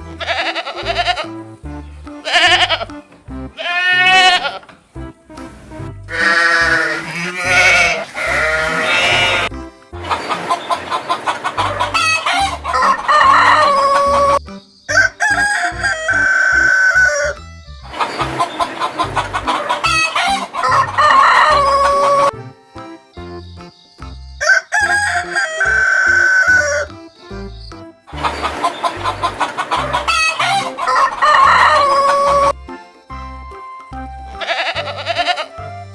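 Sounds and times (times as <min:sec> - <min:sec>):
roosters crowing: 0:03.6 - 0:04.8, 0:05.5 - 0:22.4, 0:24.4 - 0:27.0, 0:28.1 - 0:32.5.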